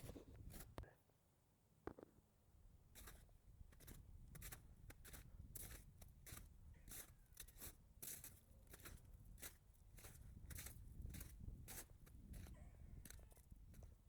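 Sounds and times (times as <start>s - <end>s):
footsteps crunching on snow: 3.8s - 12.4s.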